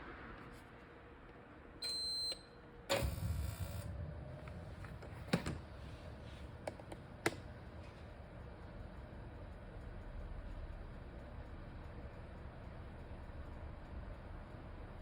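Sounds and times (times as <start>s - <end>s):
gas heater beep: 1.8s - 4.1s
heater low rumble: 2.6s - 15.0s.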